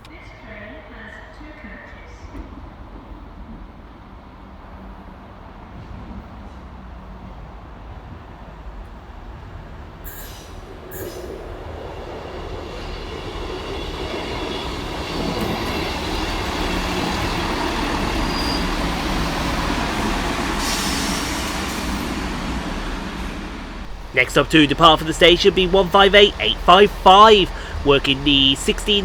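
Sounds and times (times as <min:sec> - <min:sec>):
diesel train arriving: 0:10.1 - 0:29.0.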